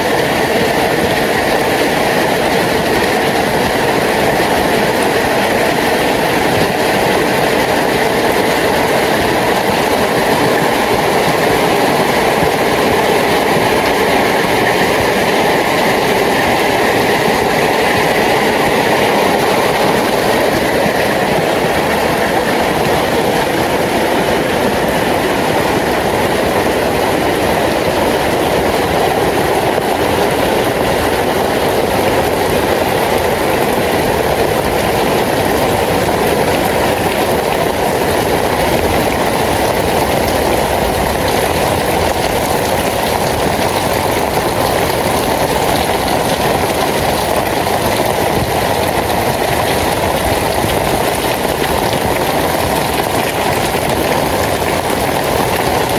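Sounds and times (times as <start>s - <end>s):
heavy rain: 0.0s - 55.9s.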